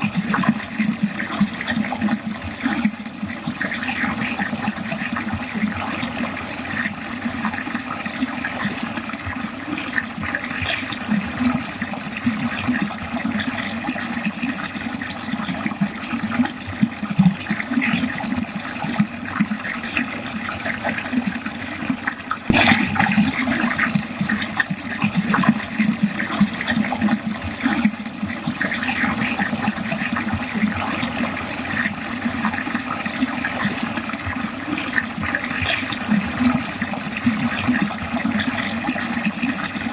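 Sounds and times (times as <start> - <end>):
water running down a drain: 0.0 - 39.9
water splash: 22.4 - 29.4.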